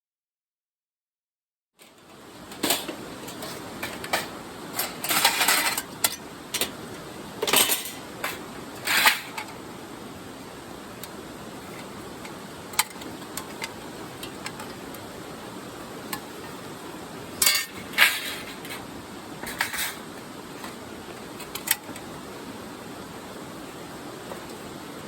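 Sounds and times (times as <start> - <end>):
steady background hiss: 1.8 - 25.0
metal parts clinking and rattling: 2.5 - 6.8, 7.4 - 9.6, 17.4 - 18.8, 19.4 - 20.0.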